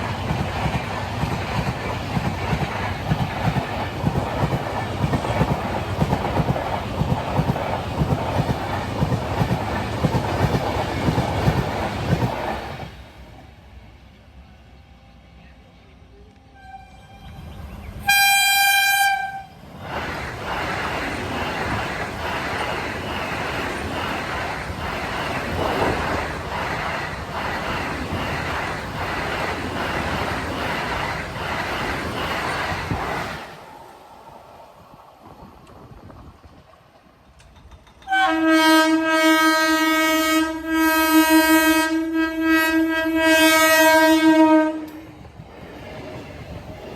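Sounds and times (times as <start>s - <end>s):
train rumble: 0.0s - 46.9s
train wheels clattering over rail joints: 19.8s - 33.5s, 37.0s - 38.3s.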